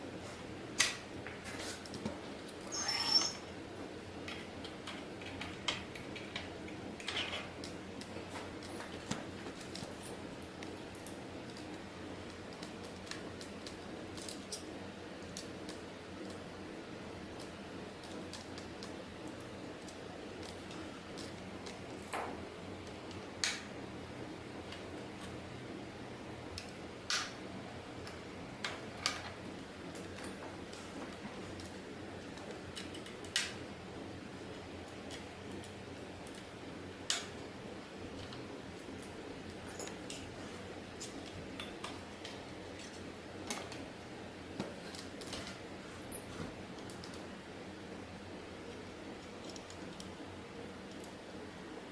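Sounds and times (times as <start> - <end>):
faint steady hum: 0.0 - 51.9
low background hiss: 0.0 - 51.9
small tools clicking and tapping: 4.2 - 16.4, 28.0 - 33.6, 37.1 - 37.4, 38.2 - 40.3, 41.0 - 43.9, 49.2 - 50.2.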